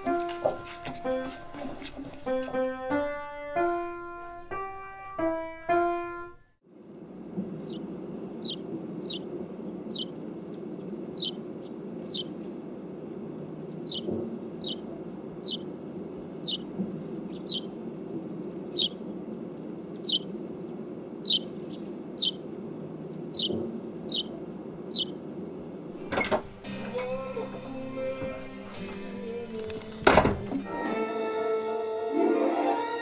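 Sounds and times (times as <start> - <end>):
small bird chirping: 7.6 - 12.6, 13.7 - 15.8, 16.4 - 19.2, 19.9 - 22.6, 23.2 - 25.2.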